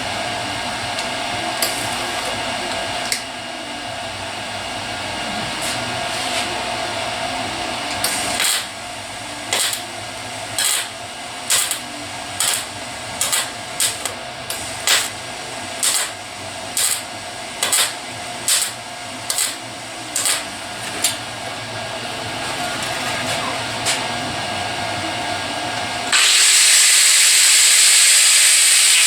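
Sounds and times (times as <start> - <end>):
steady hum: 0.0 - 26.2
welder crackling bursts: 8.0 - 21.2, 26.1 - 29.0.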